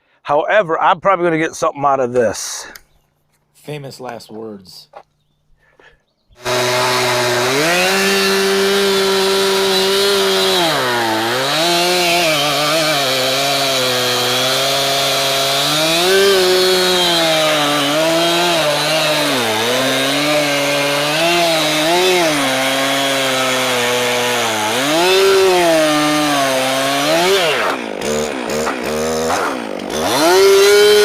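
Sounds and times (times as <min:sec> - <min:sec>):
sawmill gasoline engine under load: 0:06.4 - 0:31.0.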